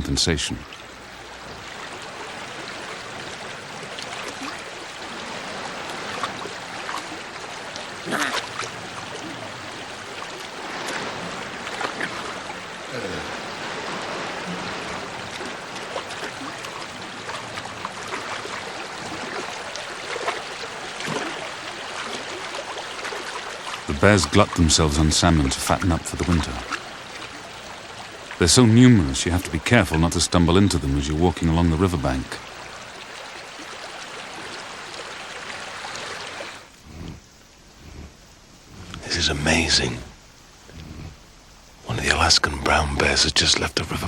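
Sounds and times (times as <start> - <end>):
river rushing over shallows: 0.0 - 44.0.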